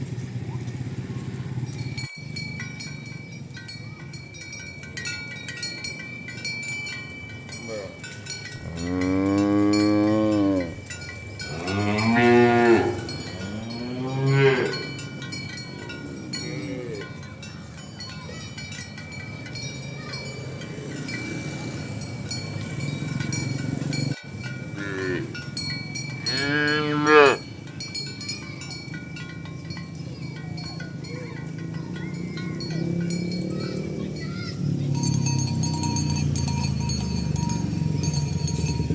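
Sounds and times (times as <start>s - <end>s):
cattle mooing: 8.6s - 10.8s, 11.4s - 15.1s, 16.1s - 17.2s, 20.4s - 25.4s, 26.2s - 27.4s, 32.1s - 37.0s.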